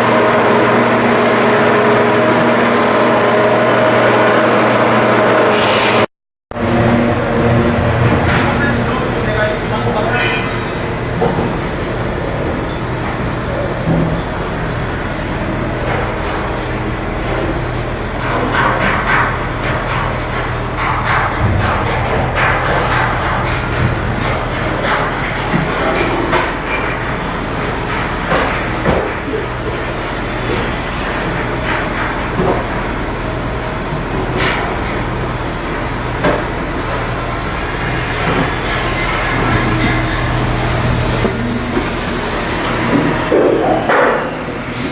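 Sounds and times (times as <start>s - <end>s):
machinery drone: 0.0s - 18.9s.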